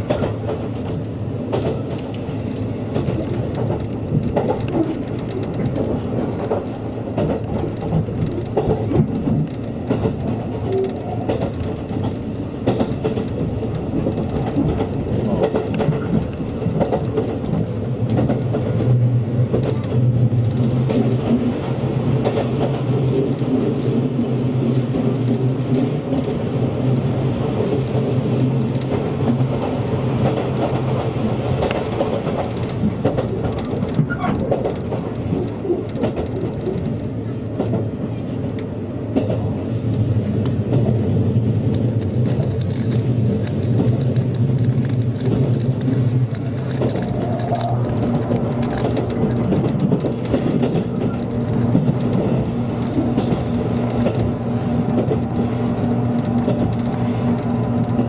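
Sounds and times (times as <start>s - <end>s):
train running noise: 0.0s - 58.0s
wheels clicking over rails: 0.0s - 58.0s.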